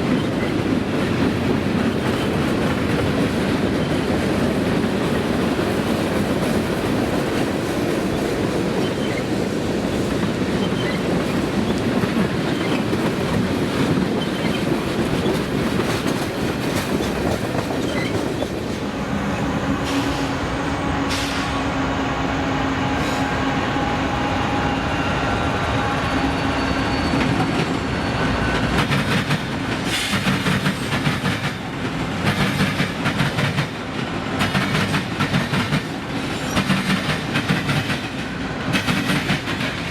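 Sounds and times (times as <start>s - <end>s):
wheels clacking over rail joints: 10.1s - 19.0s, 28.5s - 39.9s
wheels squealing: 17.0s - 18.7s, 24.1s - 28.8s.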